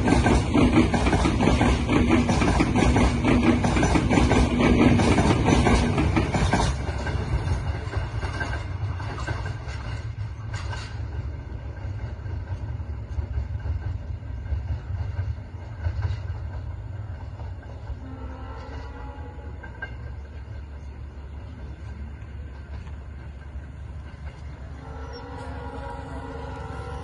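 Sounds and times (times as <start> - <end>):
low train rumble: 0.0 - 27.0
train wheels clacking on rails: 0.0 - 27.0.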